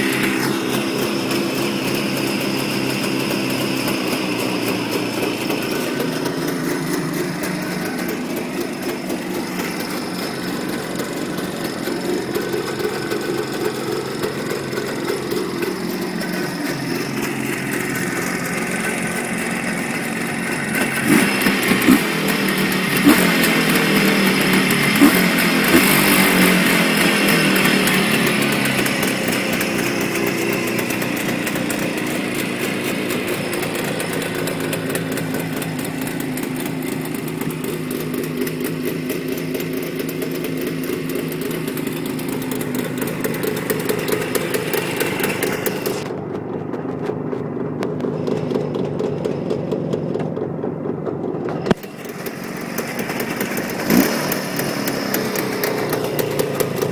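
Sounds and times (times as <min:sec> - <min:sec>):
motorcycle engine idling: 0:00.0 - 0:56.9.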